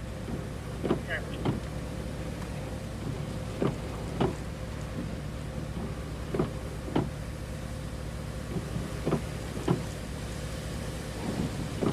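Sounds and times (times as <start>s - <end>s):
vehicle idling: 0.0s - 11.9s.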